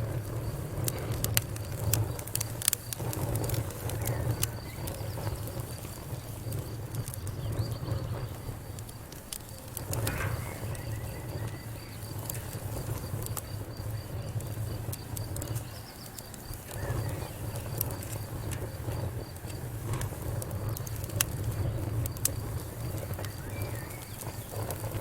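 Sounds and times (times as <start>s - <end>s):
low rumble of flames: 0.0s - 25.0s
wood fire crackling: 0.0s - 25.0s.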